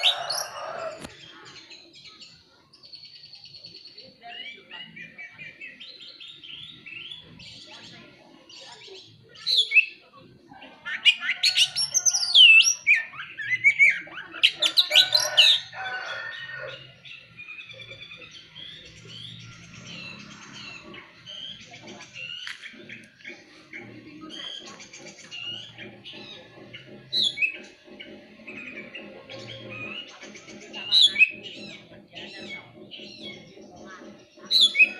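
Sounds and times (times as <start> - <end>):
bird chirping rapidly: 16.7 - 34.9.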